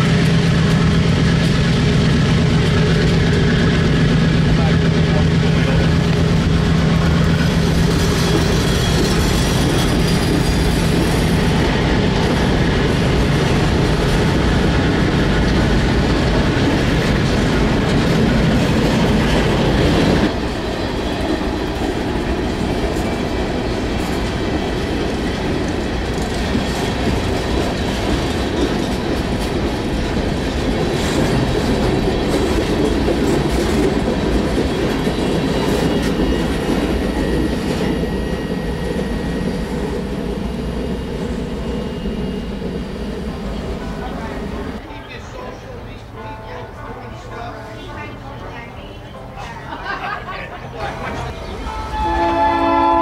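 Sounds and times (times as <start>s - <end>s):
train wheels clattering over rail joints: 0.0s - 39.6s.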